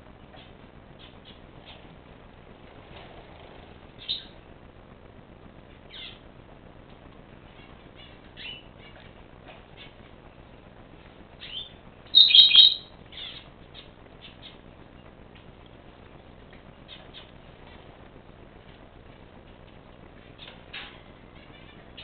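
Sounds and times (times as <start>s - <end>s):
birds chirping: 0.2s - 2.0s, 4.0s - 4.4s, 5.8s - 6.3s, 7.4s - 15.6s, 16.7s - 17.5s, 20.2s - 22.0s
harsh bird calls: 4.0s - 4.4s, 5.9s - 6.2s, 7.5s - 9.0s, 11.4s - 14.6s.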